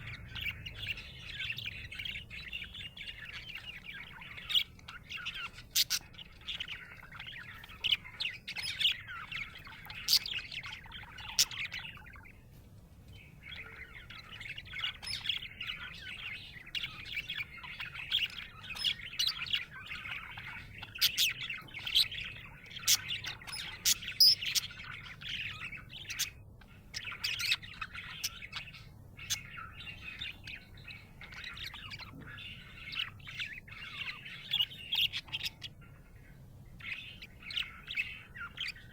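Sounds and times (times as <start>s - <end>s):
budgerigar chirping and warbling: 0.0s - 12.4s, 13.2s - 38.9s.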